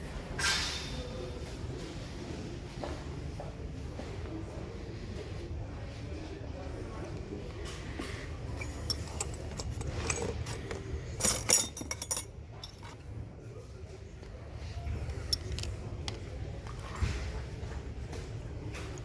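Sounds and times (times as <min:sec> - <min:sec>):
small metal parts clinking: 0:08.5 - 0:13.0, 0:15.1 - 0:15.7.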